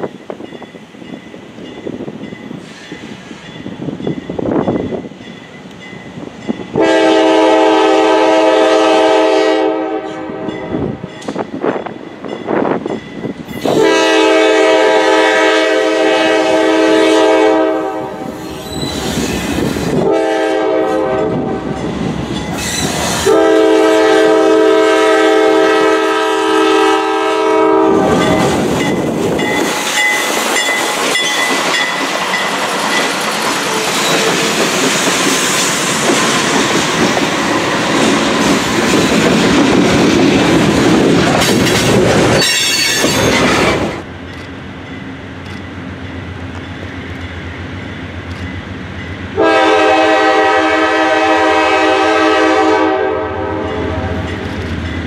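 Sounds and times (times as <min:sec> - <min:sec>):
diesel locomotives passing: 0:00.0 - 0:55.0
locomotive air horn blasts: 0:06.8 - 0:11.0, 0:13.6 - 0:18.4, 0:19.9 - 0:21.8, 0:23.2 - 0:28.5, 0:49.4 - 0:54.3
wheel squeal: 0:18.4 - 0:19.6, 0:22.5 - 0:23.2
wheels clacking over rail joints: 0:28.1 - 0:45.8.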